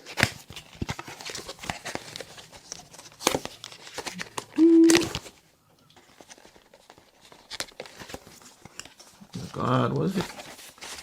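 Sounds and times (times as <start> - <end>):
brief pitched tone: 4.6 - 5.1.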